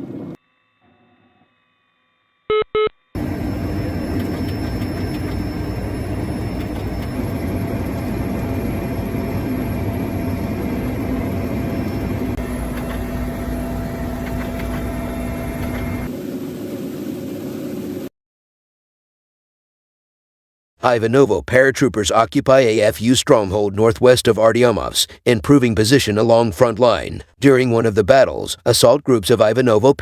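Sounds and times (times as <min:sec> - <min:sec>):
heavy engine with high whine: 0:03.2 - 0:18.0.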